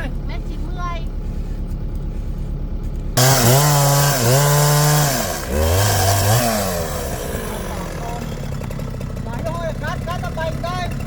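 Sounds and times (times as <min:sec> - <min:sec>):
low engine hum: 0:00.0 - 0:11.0
chainsaw cutting: 0:03.2 - 0:11.0.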